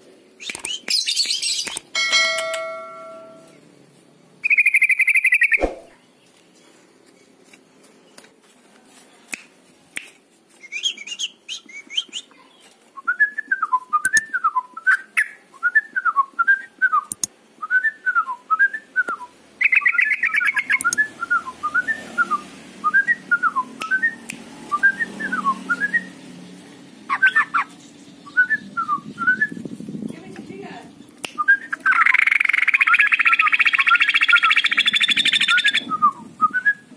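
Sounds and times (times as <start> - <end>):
high bird chirps: 0.4 - 3.6, 4.4 - 6.0, 19.6 - 22.0, 27.1 - 29.7, 31.7 - 35.9
short ringing chime: 2.0 - 3.6
bird singing whistled notes: 4.4 - 5.8, 10.6 - 12.3, 13.0 - 26.2, 27.1 - 29.7, 31.4 - 36.9
buzzy bird trill: 31.7 - 35.9.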